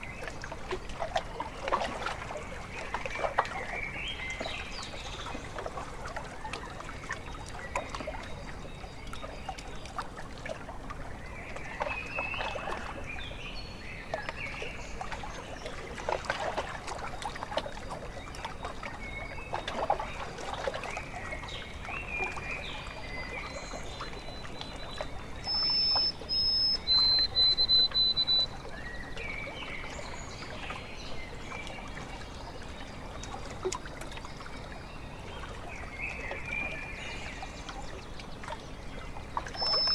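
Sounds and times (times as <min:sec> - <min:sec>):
water lapping at shore: 0:00.0 - 0:39.9
whistled bird call: 0:24.1 - 0:29.4, 0:39.5 - 0:39.9
birds calling: 0:24.3 - 0:30.2, 0:39.5 - 0:39.9.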